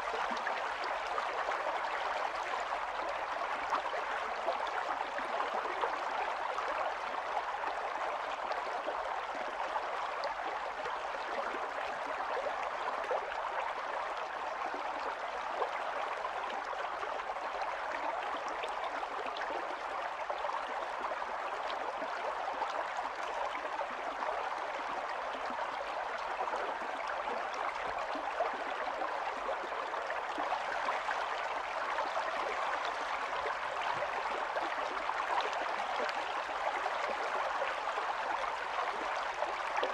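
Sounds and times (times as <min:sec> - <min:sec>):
stream gurgling over stones: 0:00.0 - 0:39.9.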